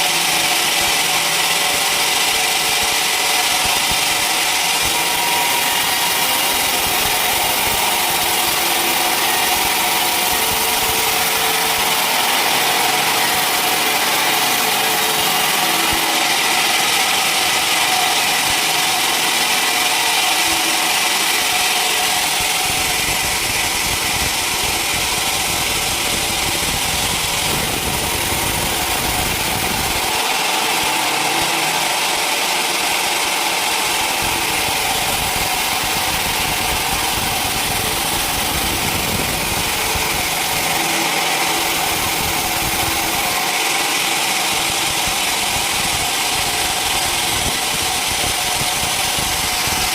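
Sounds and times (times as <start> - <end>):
sawmill machinery running: 0.0 - 49.9.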